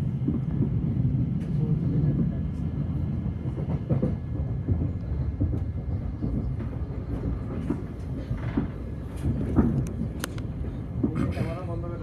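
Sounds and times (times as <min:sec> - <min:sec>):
train rumbling inside carriage: 0:00.0 - 0:12.0
wheels knocking on rails: 0:03.4 - 0:12.0.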